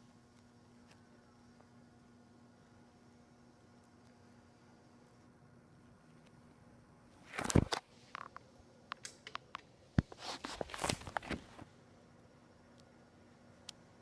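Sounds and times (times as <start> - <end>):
faint hum: 0.0 - 14.0
rustling: 10.0 - 11.7.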